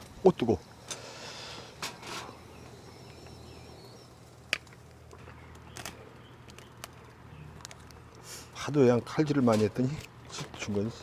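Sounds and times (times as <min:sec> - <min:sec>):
low steady hum: 0:00.0 - 0:11.0
faint high chirp: 0:02.3 - 0:04.2.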